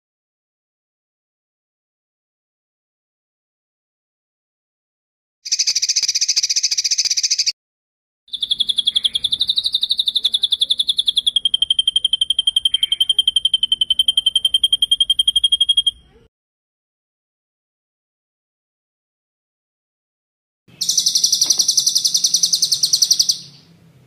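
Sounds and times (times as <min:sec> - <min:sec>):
songbird trilling: 0:05.5 - 0:07.5, 0:08.3 - 0:16.2, 0:20.8 - 0:23.7.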